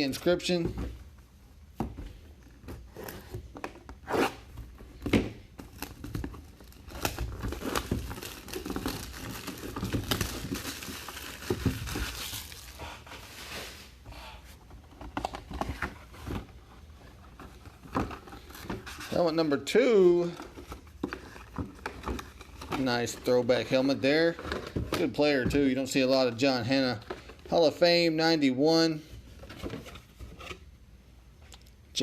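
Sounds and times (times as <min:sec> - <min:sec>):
packaging tearing and crinkling: 0:05.6 - 0:12.8.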